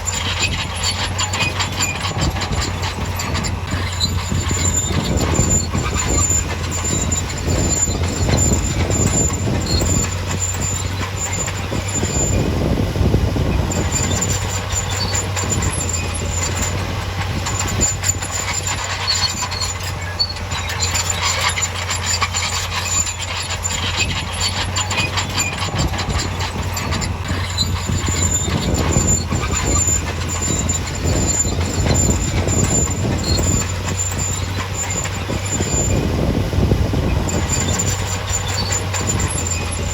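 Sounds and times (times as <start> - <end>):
bulldozer engine humming: 0.0 - 39.9
steel tracks clanking and squealing: 0.0 - 39.9.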